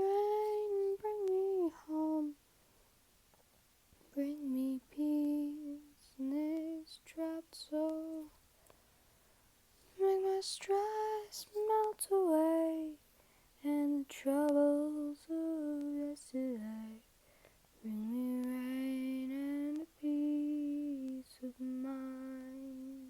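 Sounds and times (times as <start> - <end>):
woman singing unaccompanied: 0.0 - 2.4, 4.0 - 8.4, 9.9 - 17.1, 17.8 - 23.0
singer breathing: 13.1 - 13.6, 17.2 - 17.7.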